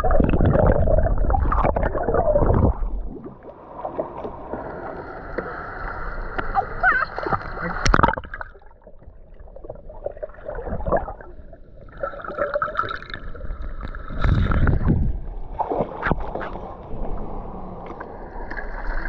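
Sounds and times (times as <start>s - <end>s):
rush of water: 0.0s - 8.7s
muffled water gurgling and sloshing: 0.0s - 19.0s.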